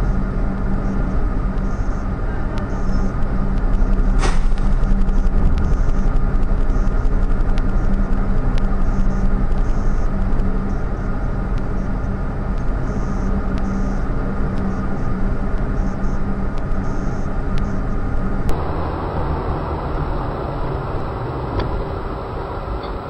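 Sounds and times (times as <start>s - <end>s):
car engine and road noise: 0.0s - 23.0s
faint ticking: 18.5s - 23.0s.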